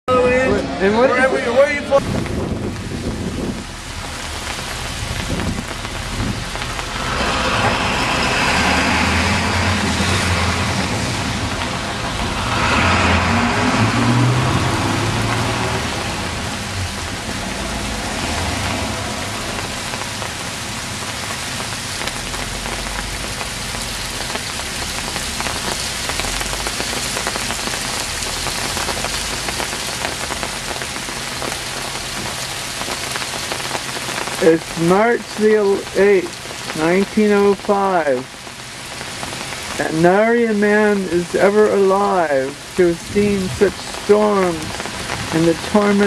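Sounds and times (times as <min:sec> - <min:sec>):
hail ticking on pavement: 0:02.0 - 0:46.0
vehicle passing: 0:06.2 - 0:20.0.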